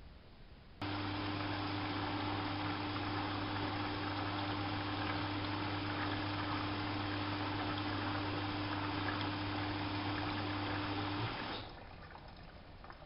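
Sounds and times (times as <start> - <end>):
electric hum: 0.6 - 11.6
washing machine switching on: 0.8 - 11.7
water rushing into machine: 0.8 - 13.0.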